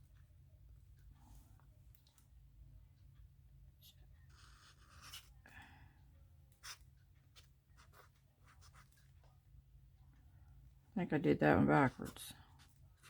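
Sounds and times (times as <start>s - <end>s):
pen scratching on paper: 3.8s - 5.4s, 6.6s - 9.1s.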